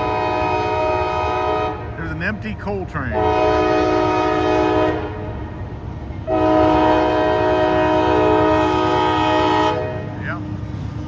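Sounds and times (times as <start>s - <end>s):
locomotive air horn chord: 0.0s - 2.0s, 3.1s - 5.4s, 6.3s - 10.2s
train low rumble: 0.0s - 11.0s.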